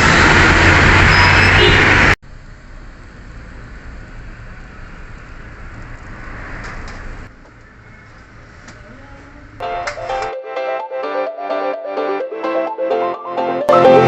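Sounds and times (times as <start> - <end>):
road traffic noise: 0.0 - 10.4, 13.0 - 14.0.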